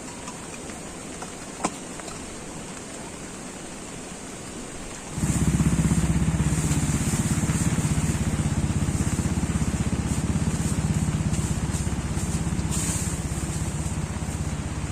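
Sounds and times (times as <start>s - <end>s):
rain hissing: 0.0s - 14.9s
small engine running: 5.2s - 14.9s.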